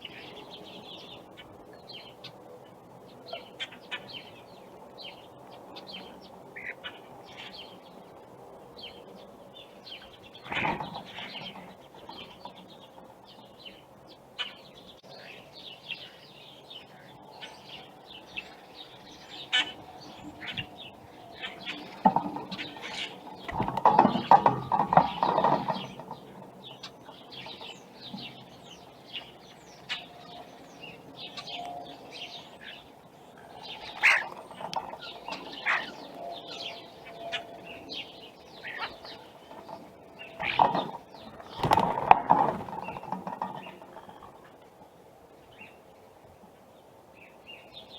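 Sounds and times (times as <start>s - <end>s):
birds chirping: 0.0s - 47.9s
wing flapping: 33.7s - 36.1s, 38.6s - 44.6s.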